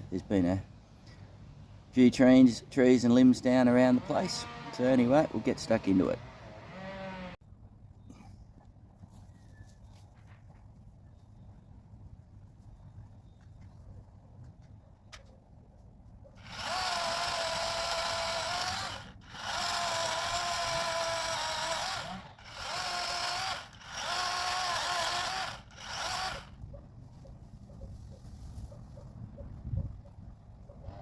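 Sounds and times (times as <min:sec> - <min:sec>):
electric chainsaw motor whine: 0:03.5 - 0:07.4, 0:16.4 - 0:26.6.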